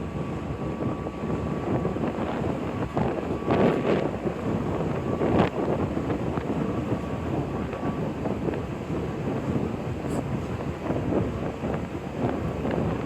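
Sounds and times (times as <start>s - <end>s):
ship engine rumbling: 0.0s - 13.0s
wind gusting on microphone: 0.0s - 13.0s.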